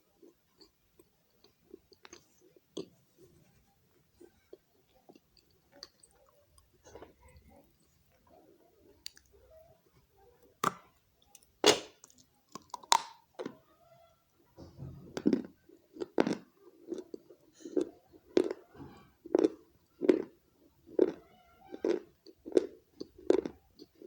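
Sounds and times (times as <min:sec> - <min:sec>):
person chewing: 0:00.2 - 0:03.1, 0:04.2 - 0:07.8, 0:08.9 - 0:09.3, 0:10.5 - 0:13.6, 0:15.2 - 0:24.0.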